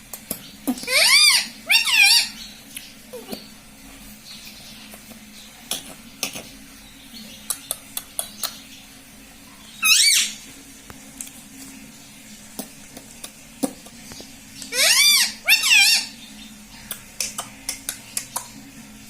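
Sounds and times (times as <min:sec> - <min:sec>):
parrot squawk: 0:00.8 - 0:02.4, 0:09.8 - 0:10.4, 0:14.7 - 0:16.2.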